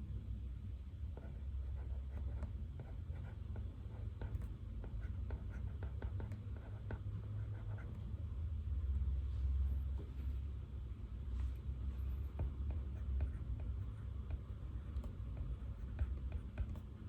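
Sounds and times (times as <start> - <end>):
low room hum: 0.0 - 17.0
pen writing on paper: 1.1 - 8.1, 12.2 - 17.0.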